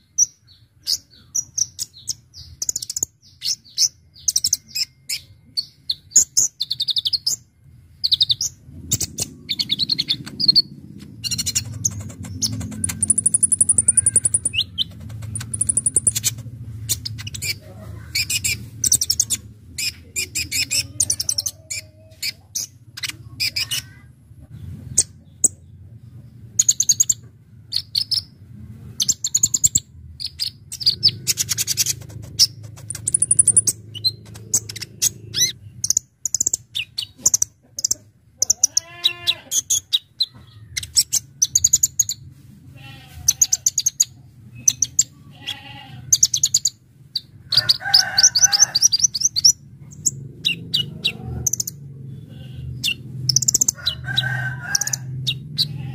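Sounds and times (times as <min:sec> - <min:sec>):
sunbird high chattering song: 0:00.0 - 0:24.2, 0:29.0 - 0:42.2
steady low hum: 0:07.4 - 0:21.8.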